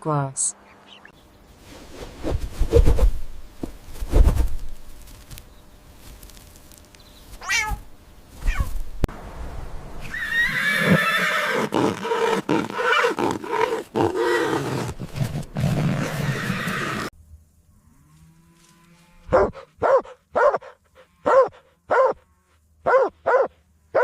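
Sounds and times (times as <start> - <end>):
animal squeaks: 7.4 - 7.8.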